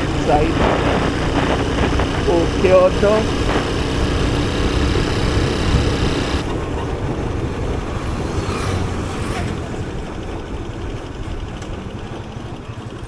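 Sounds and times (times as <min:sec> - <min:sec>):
motorcycle engine riding: 0:00.0 - 0:13.0
road noise: 0:00.0 - 0:13.0.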